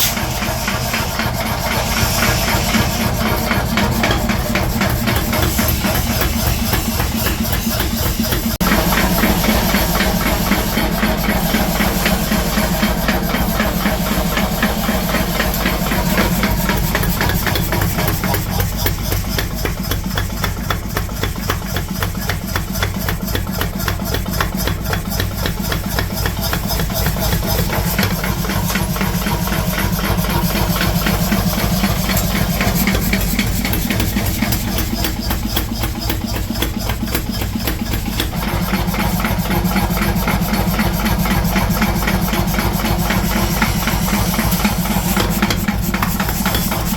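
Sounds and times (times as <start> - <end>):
machinery low hum: 0.0 - 18.6
mechanical clatter: 0.0 - 46.9.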